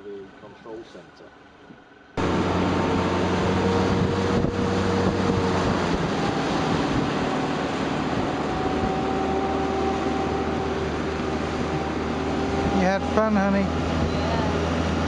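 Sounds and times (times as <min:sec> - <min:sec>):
outboard engine running: 0:00.0 - 0:15.0
water noise: 0:01.6 - 0:15.0
wind on microphone: 0:02.2 - 0:15.0.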